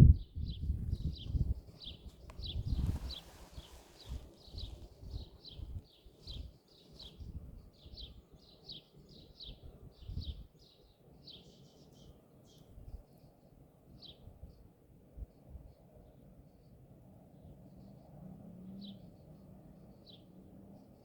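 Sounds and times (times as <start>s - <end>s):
small bird chirping: 0.0s - 14.6s.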